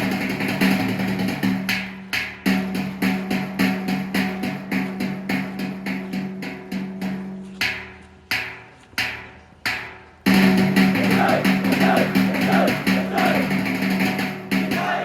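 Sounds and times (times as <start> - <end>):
loud music with drums: 0.0 - 9.2, 9.8 - 15.0
sharp percussion hits: 10.3 - 15.0.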